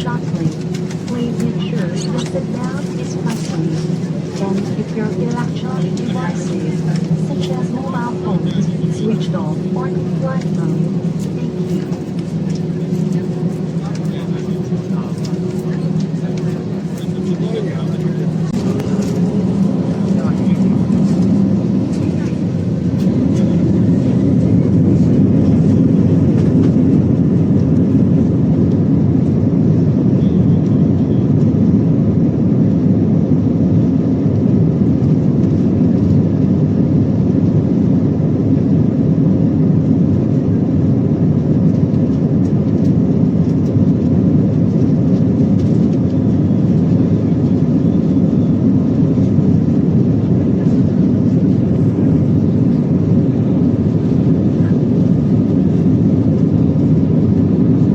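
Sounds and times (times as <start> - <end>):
faint steady whine: 0.0 - 25.6
air rushing in cabin: 0.0 - 29.0
aircraft engines rumbling: 0.0 - 57.9.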